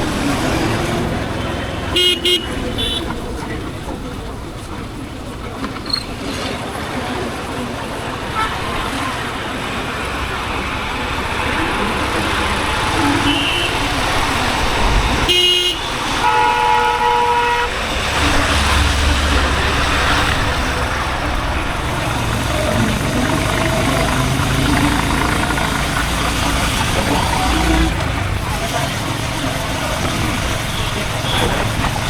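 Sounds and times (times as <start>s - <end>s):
road noise: 0.0s - 32.0s
vehicle horn honking: 1.3s - 3.4s, 13.0s - 14.4s, 15.2s - 18.8s
motorcycle engine running: 18.1s - 32.0s.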